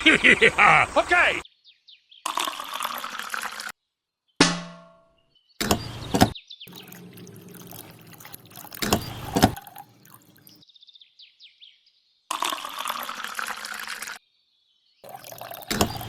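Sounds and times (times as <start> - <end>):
water splashing and pouring: 6.7 - 10.6, 12.4 - 14.2, 15.0 - 16.0.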